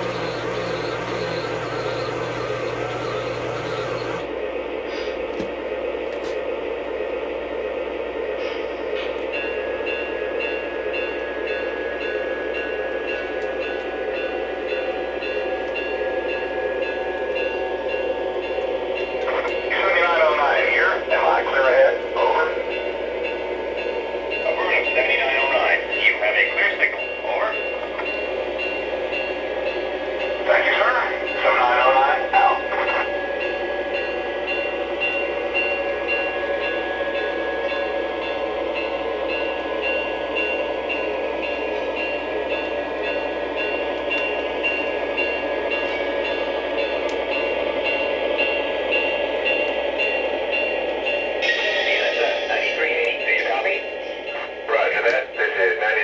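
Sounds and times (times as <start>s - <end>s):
light clicks of train wheels: 0.0s - 4.3s, 4.9s - 6.5s, 8.4s - 9.4s, 12.9s - 14.2s, 14.8s - 16.0s, 16.9s - 20.8s, 26.4s - 28.3s, 43.6s - 51.2s, 51.8s - 55.6s
model train motor hum: 0.0s - 4.3s.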